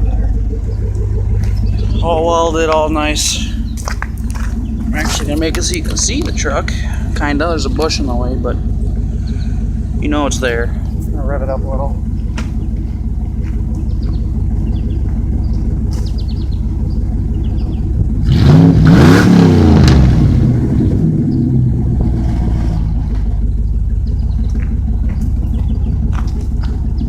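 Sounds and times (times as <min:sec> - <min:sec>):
truck engine idling and revving: 0:00.0 - 0:27.0.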